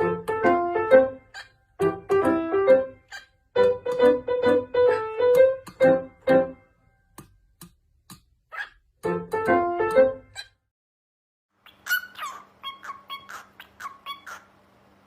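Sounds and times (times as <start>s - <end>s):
piano melody: 0.0s - 7.4s, 8.9s - 10.5s.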